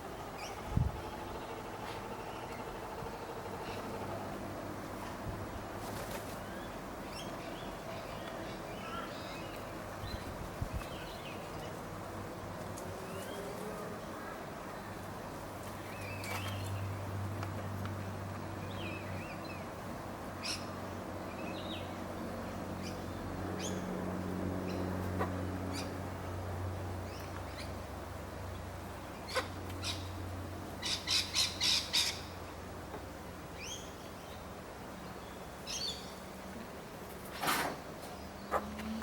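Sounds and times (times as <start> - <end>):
birds squawking and chirping: 0.3 - 4.4.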